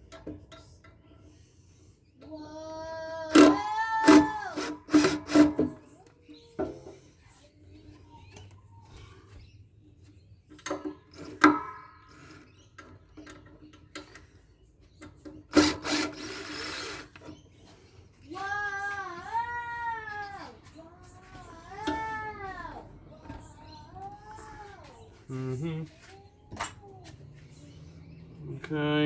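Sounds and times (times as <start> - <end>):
tool scraping: 3.4 - 5.8.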